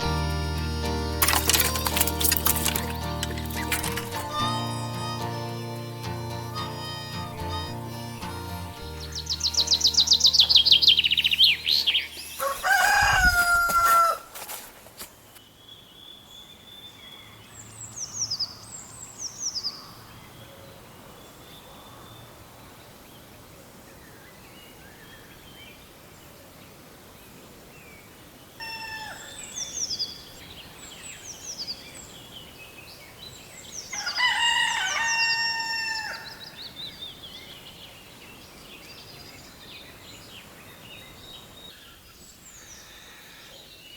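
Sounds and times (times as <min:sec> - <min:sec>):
songbirds chirping: 0:00.0 - 0:43.9
rooster crowing: 0:12.4 - 0:14.3, 0:28.6 - 0:29.5, 0:33.9 - 0:36.6.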